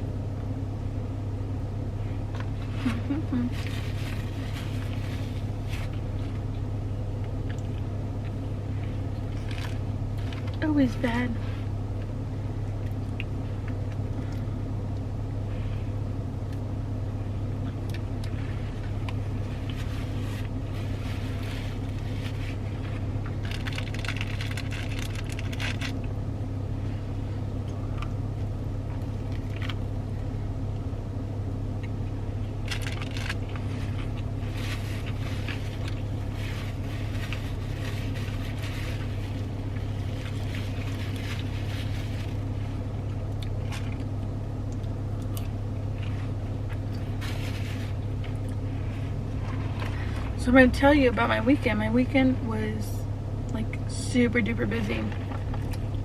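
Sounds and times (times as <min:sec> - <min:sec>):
car idling hum: 0:00.0 - 0:56.0
crunching and chewing: 0:02.2 - 0:10.6, 0:17.6 - 0:26.2, 0:27.6 - 0:30.9, 0:31.8 - 0:50.4, 0:55.1 - 0:56.0
wrapper rustling: 0:02.6 - 0:06.4, 0:18.4 - 0:26.0, 0:32.6 - 0:44.0, 0:47.0 - 0:50.1.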